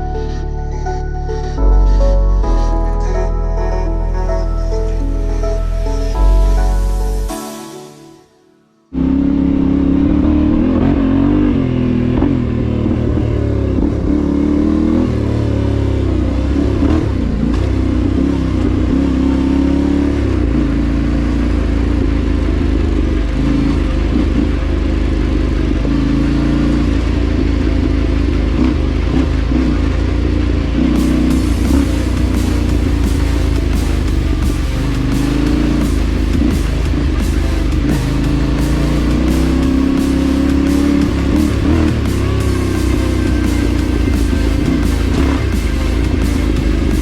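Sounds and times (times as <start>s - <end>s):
motorcycle engine revving: 8.9s - 47.0s.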